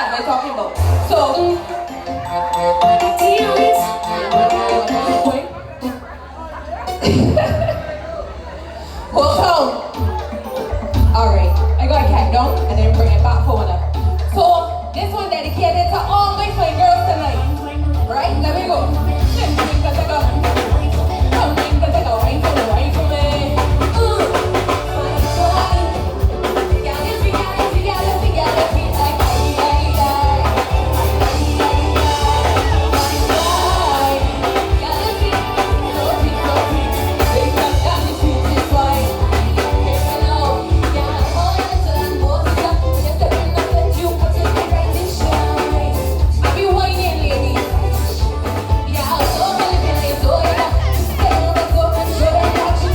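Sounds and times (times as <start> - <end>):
live soca music over pa: 0.0 - 52.9
heavy bass: 0.8 - 5.3, 10.9 - 52.9
person singing: 0.8 - 5.6, 17.6 - 52.9
driving drum beat: 9.3 - 52.9.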